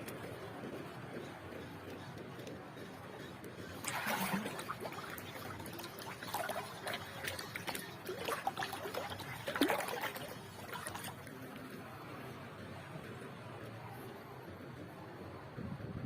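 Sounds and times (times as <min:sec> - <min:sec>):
seawater splashing on shore: 0:03.8 - 0:11.2.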